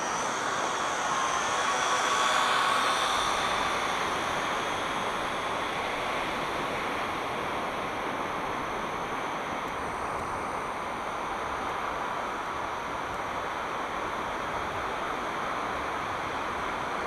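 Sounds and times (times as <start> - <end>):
drone propellers whining: 0.0 - 8.6
wind: 0.0 - 17.0.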